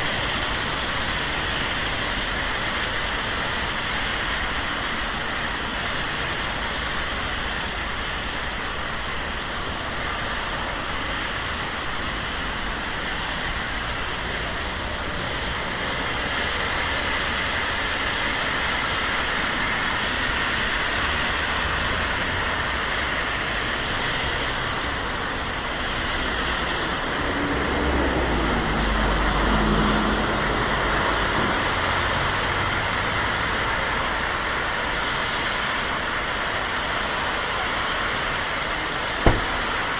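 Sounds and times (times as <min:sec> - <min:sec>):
steady rain: 0:00.0 - 0:39.9
traffic hiss on wet roads: 0:00.0 - 0:39.9
vehicle engine rumble passing: 0:26.1 - 0:33.0.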